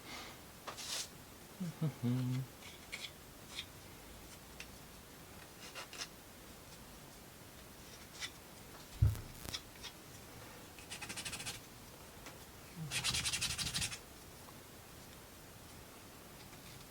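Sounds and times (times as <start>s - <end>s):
dull knock: 9.0s - 9.4s.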